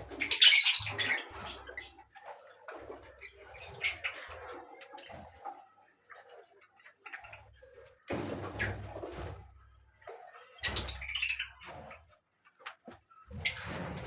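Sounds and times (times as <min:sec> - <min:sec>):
birds chirping: 0:00.0 - 0:07.8, 0:10.0 - 0:12.2.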